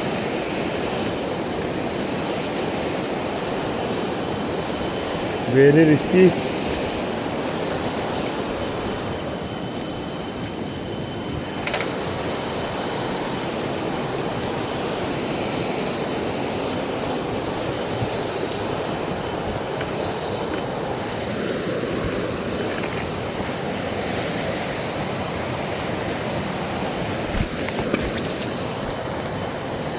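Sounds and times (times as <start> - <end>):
sharp click: 11.6 - 12.0.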